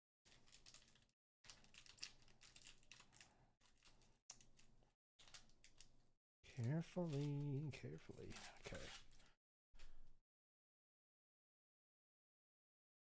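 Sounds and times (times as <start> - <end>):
foil pack crinkling: 0.3 - 10.0.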